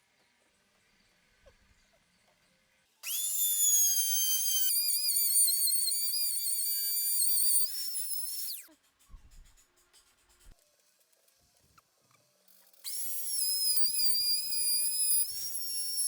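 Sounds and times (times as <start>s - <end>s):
router motor whining: 3.0s - 8.7s, 12.7s - 16.0s.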